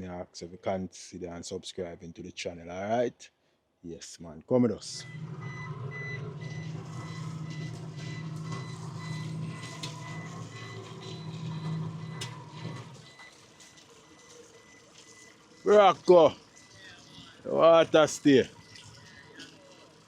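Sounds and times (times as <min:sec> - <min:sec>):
high-pitched electronic beeping: 0:05.0 - 0:19.6
low engine hum: 0:05.0 - 0:20.0.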